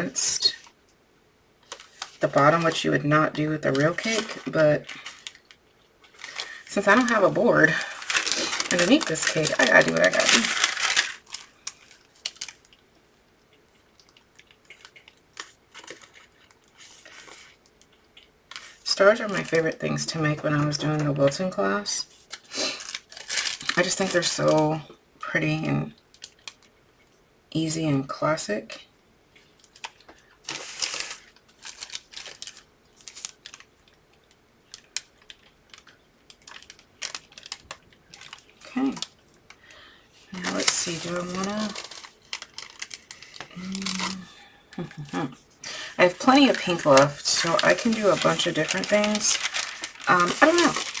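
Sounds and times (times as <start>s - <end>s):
piping bag clicks and crinkles: 1.6s - 12.9s, 13.5s - 21.4s, 22.1s - 24.6s, 26.0s - 26.7s, 29.5s - 39.7s, 40.4s - 45.2s, 45.9s - 51.0s.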